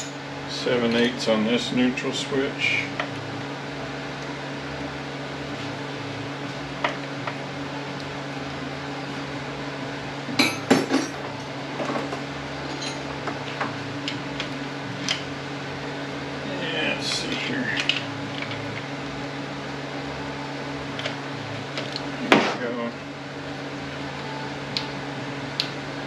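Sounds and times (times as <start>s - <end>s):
metal tools clinking: 12.6s - 13.1s.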